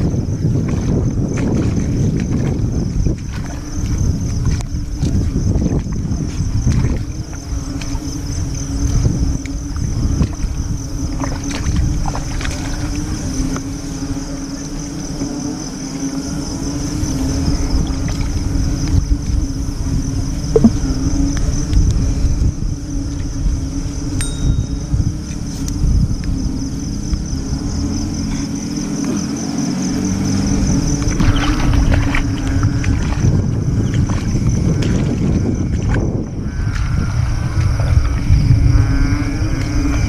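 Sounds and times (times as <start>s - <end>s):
night insects trilling: 0.0s - 40.0s
wading and rustling in wet grass: 0.0s - 40.0s
low drone: 6.8s - 34.2s.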